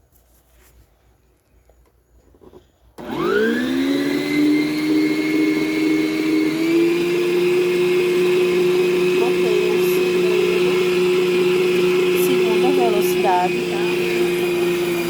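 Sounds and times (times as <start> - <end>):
stand mixer motor whining: 3.0 - 15.0.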